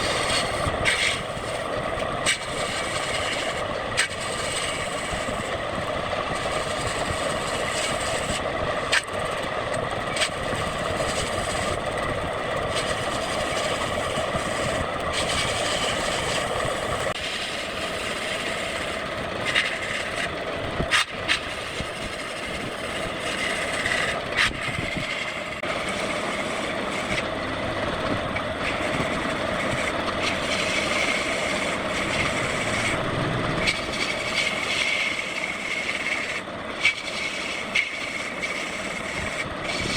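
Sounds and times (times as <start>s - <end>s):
tool cutting spinning wood: 0.0s - 39.9s
wood lathe motor hum: 0.0s - 39.9s.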